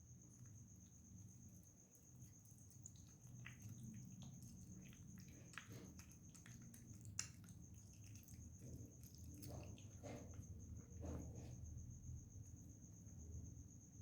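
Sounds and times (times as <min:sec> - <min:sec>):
cat chewing food: 0:01.8 - 0:11.4.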